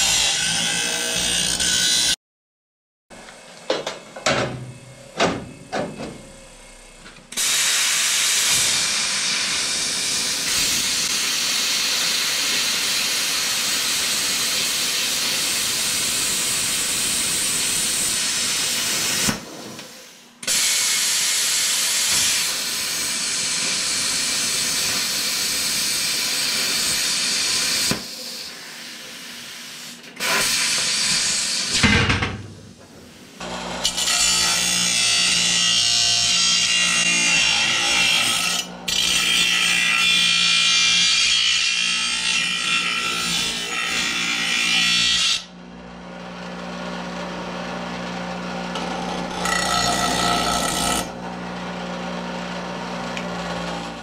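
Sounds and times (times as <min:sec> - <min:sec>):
plasma cutter hissing: 0:07.4 - 0:31.9.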